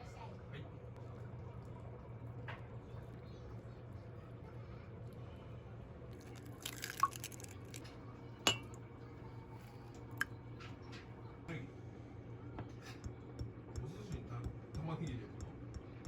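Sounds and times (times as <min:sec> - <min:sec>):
small hard objects clinking: 0:06.2 - 0:07.8.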